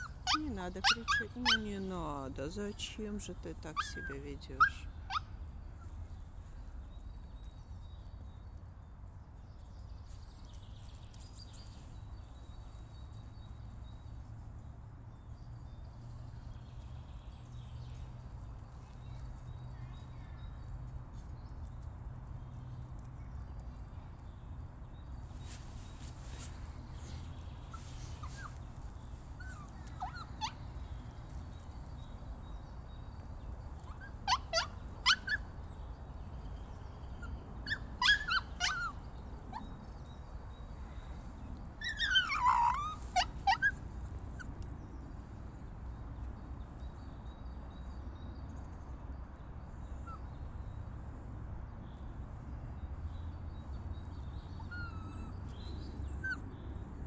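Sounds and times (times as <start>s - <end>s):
dog whining: 0.0s - 1.7s, 29.4s - 30.6s, 33.8s - 35.4s, 36.5s - 39.7s, 41.8s - 44.5s, 54.6s - 57.0s.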